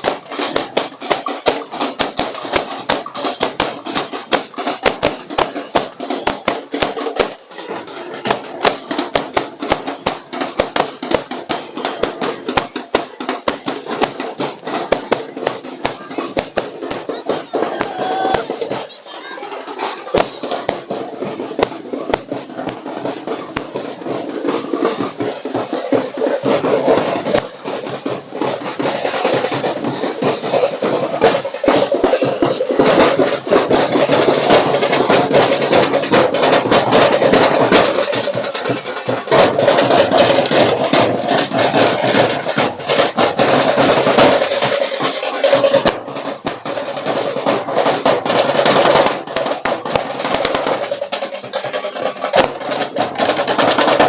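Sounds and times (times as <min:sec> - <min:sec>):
drum band playing fast rhythm: 0:00.0 - 0:54.0.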